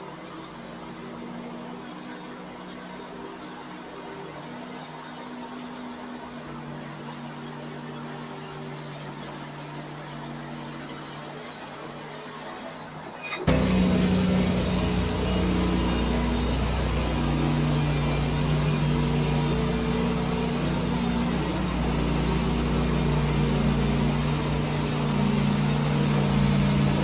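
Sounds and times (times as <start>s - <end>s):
sawmill engine running: 13.4s - 27.0s.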